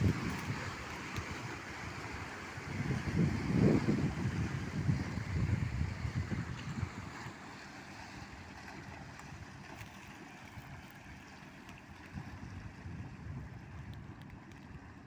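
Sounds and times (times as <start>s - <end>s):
wind buffeting microphone: 0.0s - 7.3s, 12.0s - 15.0s
waves washing along riverbank: 0.0s - 15.0s.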